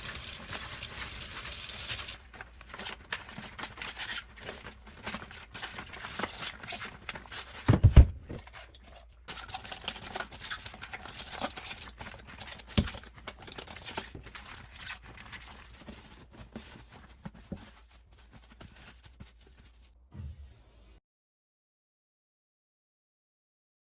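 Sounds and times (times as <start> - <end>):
plastic rustling and clicks: 2.2 - 18.0.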